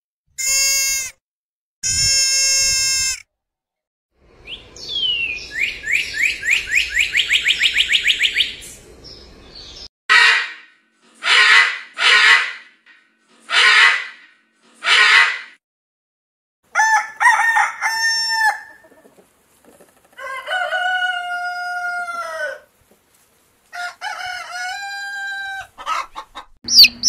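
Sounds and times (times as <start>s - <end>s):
deer bleating call: 0.4s - 1.2s, 1.8s - 3.3s
cardinal whistling song: 4.5s - 8.6s
macaws squawking: 10.1s - 12.8s, 13.4s - 15.6s.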